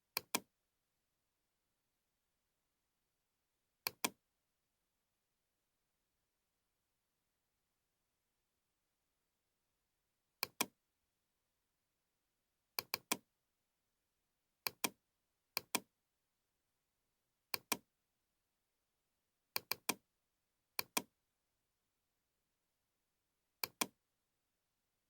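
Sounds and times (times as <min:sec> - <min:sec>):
computer mouse clicking: 0:00.2 - 0:00.4, 0:03.9 - 0:04.1, 0:10.4 - 0:10.7, 0:12.8 - 0:13.2, 0:17.6 - 0:17.8, 0:19.6 - 0:20.0, 0:20.8 - 0:21.1, 0:23.6 - 0:23.9.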